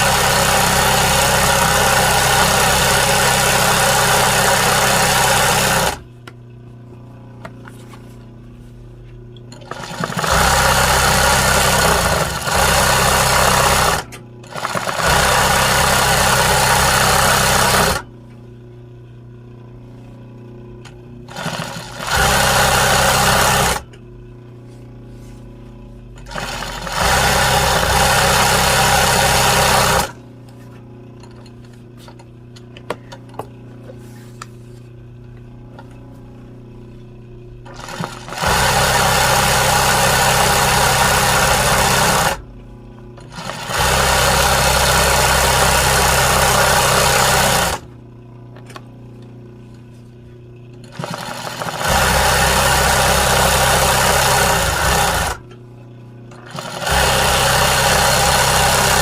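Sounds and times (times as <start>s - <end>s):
sewing machine stitching: 0.0s - 6.0s, 9.5s - 18.1s, 21.3s - 23.9s, 26.2s - 30.2s, 37.6s - 42.4s, 43.2s - 47.9s, 50.8s - 55.4s, 56.3s - 59.0s.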